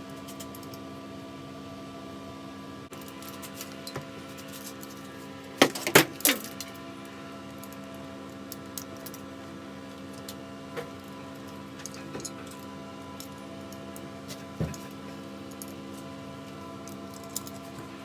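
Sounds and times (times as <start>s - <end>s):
steady electrical hum: 0.0s - 18.0s
small metal parts clinking: 5.7s - 6.8s, 16.8s - 17.8s.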